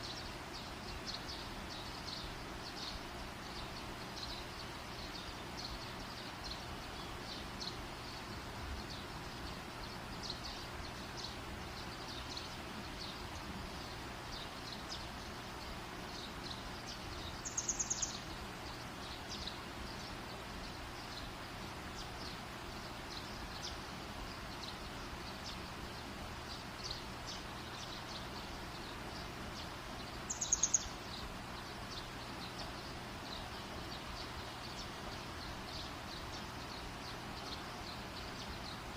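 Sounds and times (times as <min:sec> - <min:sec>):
high rapid chirping call: 0:17.4 - 0:18.2, 0:30.2 - 0:31.1.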